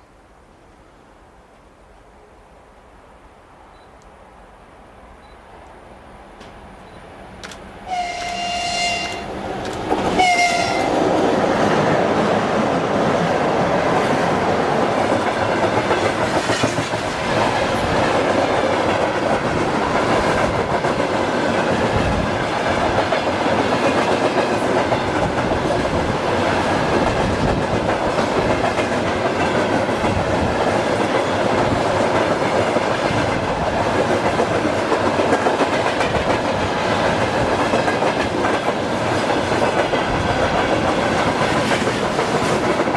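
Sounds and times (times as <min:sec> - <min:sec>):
train horn blast: 0:07.9 - 0:09.3, 0:10.2 - 0:11.0
train wheels clattering on rails: 0:08.0 - 0:42.9.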